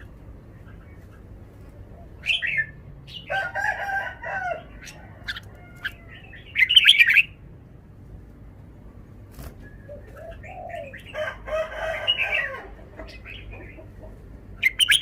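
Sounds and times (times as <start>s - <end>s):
bird singing bright phrases: 2.0s - 3.5s, 4.6s - 7.4s, 14.6s - 15.0s.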